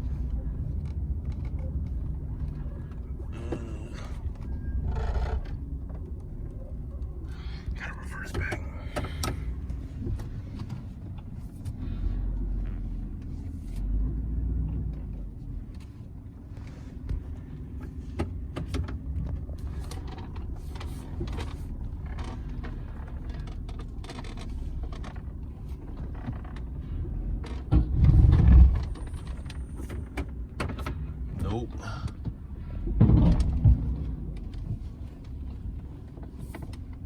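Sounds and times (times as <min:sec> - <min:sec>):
truck engine running slowly: 0:00.0 - 0:37.0
low rumbling thump: 0:32.8 - 0:34.2.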